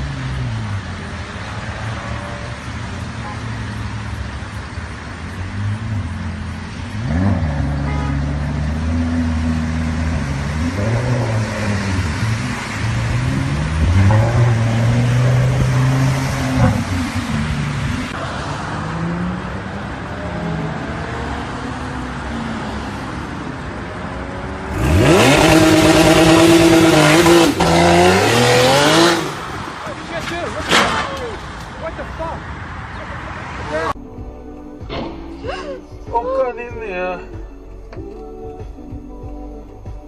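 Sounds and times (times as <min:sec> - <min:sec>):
sports car engine revving: 0:05.4 - 0:18.2, 0:24.2 - 0:29.8.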